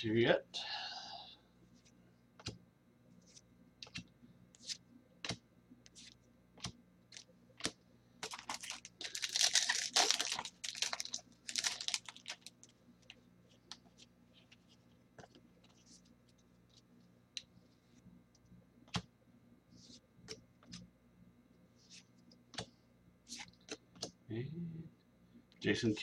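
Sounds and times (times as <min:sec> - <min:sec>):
papery rustling: 0:07.6 - 0:12.6.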